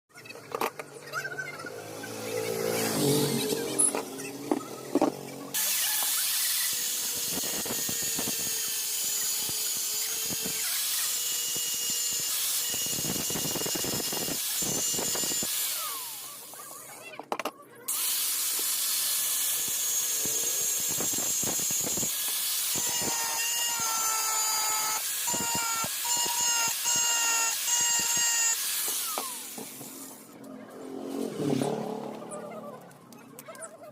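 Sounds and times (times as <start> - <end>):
power tool running with hiss: 5.5 - 16.7, 17.9 - 30.3.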